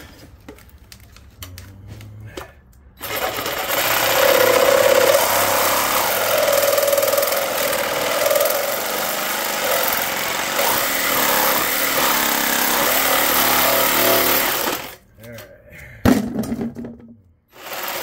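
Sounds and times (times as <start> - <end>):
reciprocating saw cutting metal: 3.0 - 15.0.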